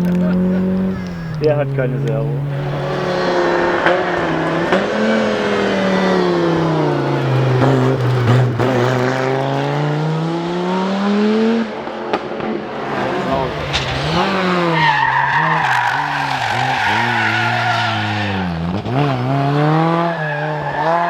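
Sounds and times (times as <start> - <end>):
rally car engine revving: 0.0 - 21.0
sharp engine cracks: 12.8 - 14.8.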